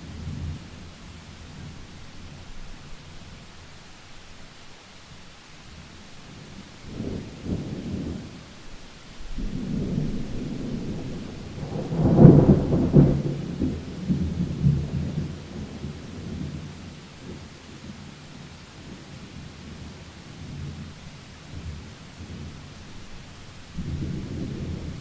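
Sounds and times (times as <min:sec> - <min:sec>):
steady rain: 0:00.0 - 0:25.0
rolling thunder: 0:09.3 - 0:17.5, 0:23.7 - 0:25.0.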